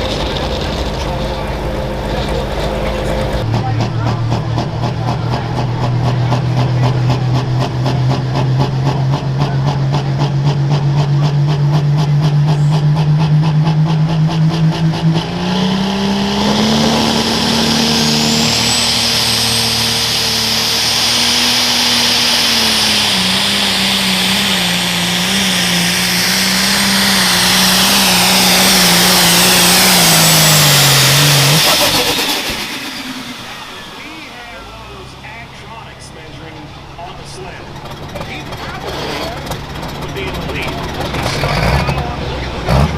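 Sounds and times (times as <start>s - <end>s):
diesel tractor engine at full throttle: 0.0s - 42.9s
high turbo whistle: 15.4s - 35.0s.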